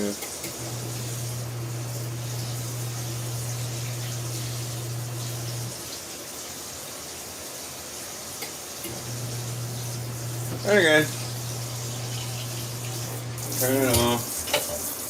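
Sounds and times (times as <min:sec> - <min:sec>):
water running into tub: 0:00.0 - 0:15.0
electric motor hum: 0:00.5 - 0:05.8, 0:08.9 - 0:14.3.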